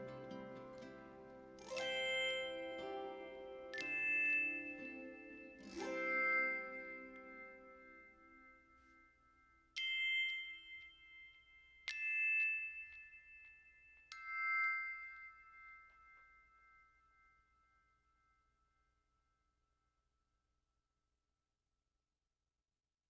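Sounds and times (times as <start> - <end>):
background music: 0.0 - 8.4
chime notes ringing: 0.0 - 17.6.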